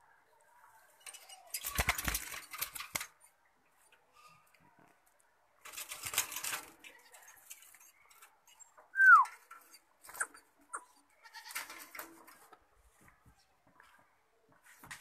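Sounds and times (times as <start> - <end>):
bird whistled call: 9.0 - 9.3.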